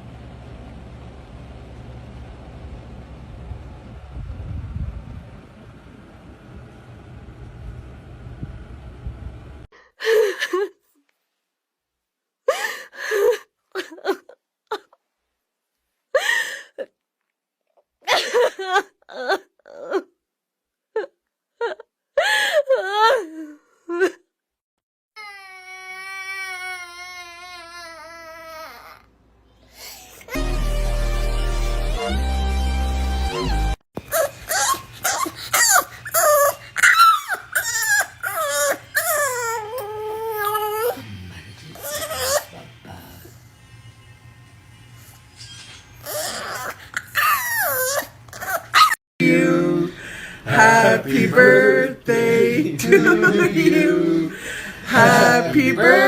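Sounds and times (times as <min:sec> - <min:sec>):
short vocal cries and whines: 0:33.3 - 0:41.1, 0:45.4 - 0:49.0, 0:54.9 - 0:56.0.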